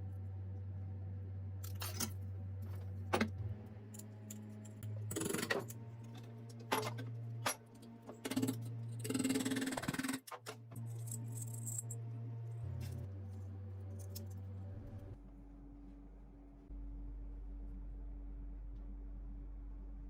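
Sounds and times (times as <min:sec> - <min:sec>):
steady low hum: 0:00.0 - 0:20.0
small metal parts clinking: 0:01.6 - 0:02.2, 0:10.8 - 0:12.0.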